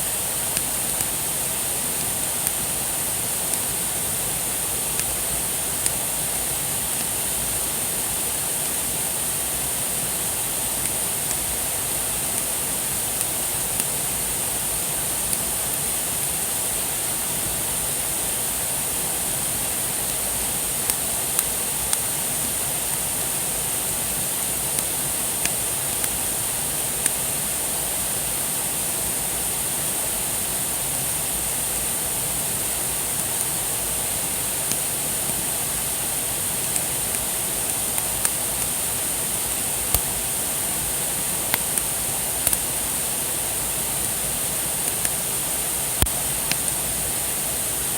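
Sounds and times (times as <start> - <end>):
wood fire hissing: 0.0 - 47.9
fire crackling and popping: 0.1 - 7.4, 10.2 - 16.3, 19.7 - 27.3, 33.0 - 43.1, 44.0 - 45.3, 45.9 - 47.0.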